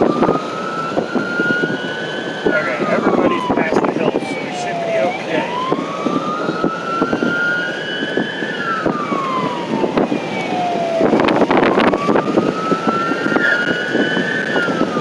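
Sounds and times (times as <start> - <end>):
emergency vehicle siren wailing: 0.0 - 15.0
road noise: 0.0 - 15.0.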